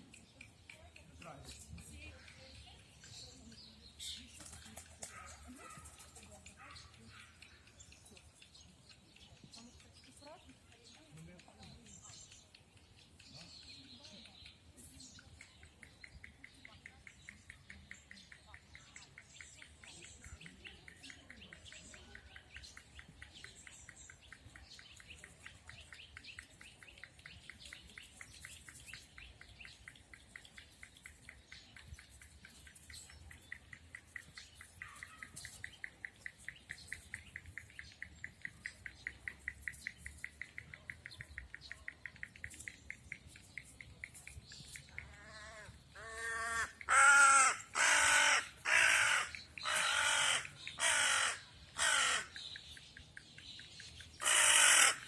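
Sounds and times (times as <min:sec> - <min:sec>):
songbirds chirping: 0:00.0 - 0:55.0
crow cawing: 0:45.2 - 0:52.4, 0:54.2 - 0:55.0.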